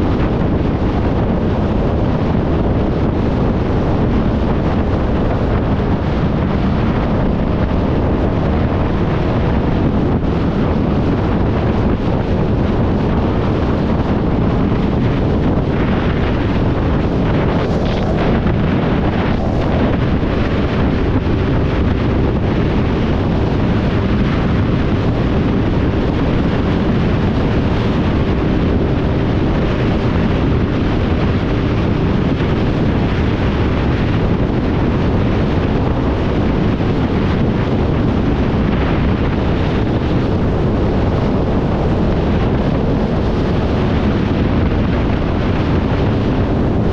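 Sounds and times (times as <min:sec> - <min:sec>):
motorcycle engine: 0:00.0 - 0:35.6
road noise: 0:00.0 - 0:46.9
wind noise on microphone: 0:00.0 - 0:46.9.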